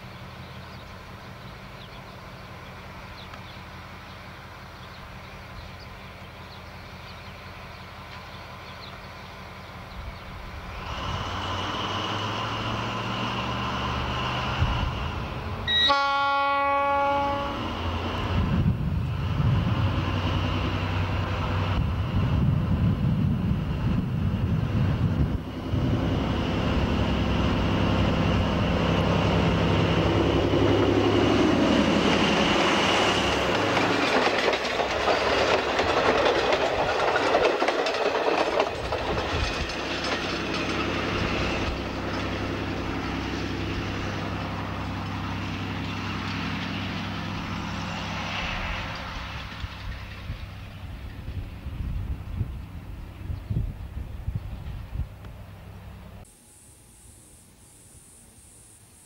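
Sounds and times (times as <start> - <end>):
locomotive engine drone: 0.0 - 59.0
wheels clattering along rails: 17.8 - 55.4
thin high whine: 56.2 - 59.0.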